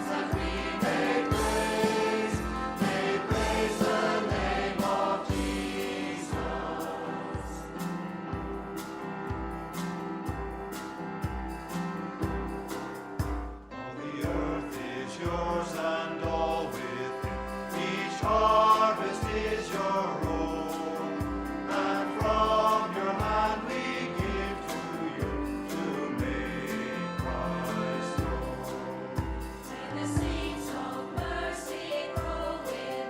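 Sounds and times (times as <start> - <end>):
choir singing worship song: 0.0 - 12.9, 13.8 - 33.0
cymbals: 0.0 - 33.0
guitar: 0.0 - 33.0
kick drum beat: 0.3 - 6.8, 22.2 - 23.6, 29.2 - 31.6.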